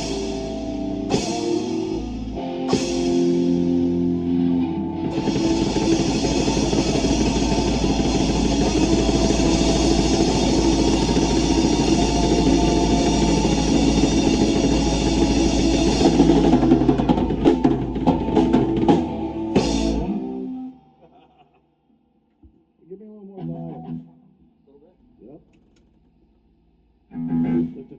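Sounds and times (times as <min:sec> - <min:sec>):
rock band playing loud: 0:00.0 - 0:20.6
drum hits: 0:05.1 - 0:20.1.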